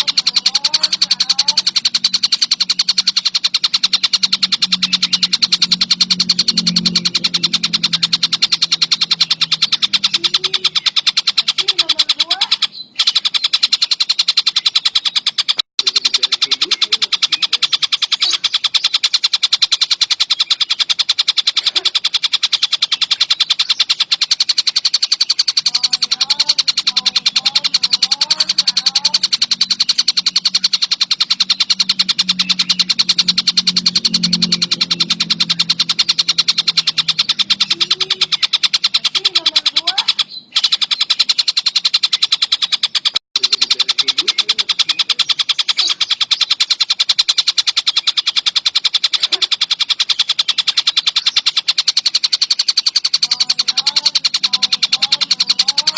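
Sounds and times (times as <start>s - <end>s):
kingfisher calling sharp notes: 0.0s - 55.9s.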